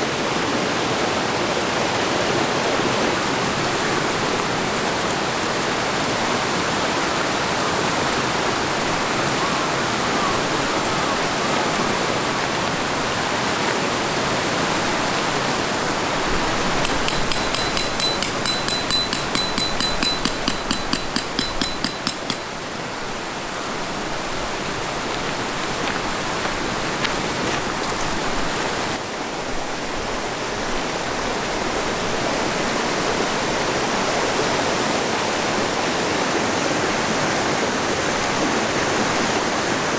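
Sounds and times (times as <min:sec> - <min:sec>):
high ringing ticks: 0:16.8 - 0:22.8.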